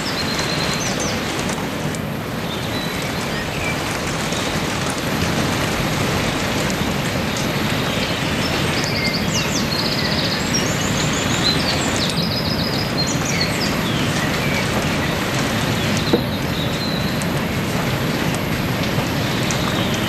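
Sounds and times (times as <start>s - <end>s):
heavy rain falling: 0.0s - 20.0s
birds calling: 7.0s - 20.0s.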